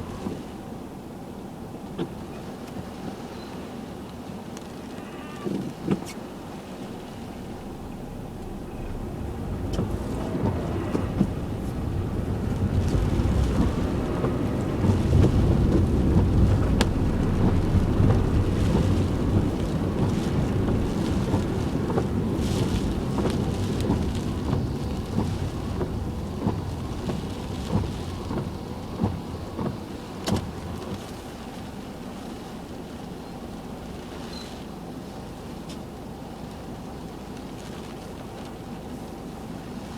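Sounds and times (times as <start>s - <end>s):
heavy rain on a car: 0.0s - 39.9s.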